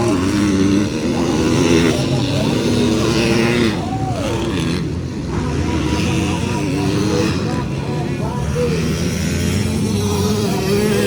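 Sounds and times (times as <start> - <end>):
motocross bike engines revving: 0.0 - 11.0.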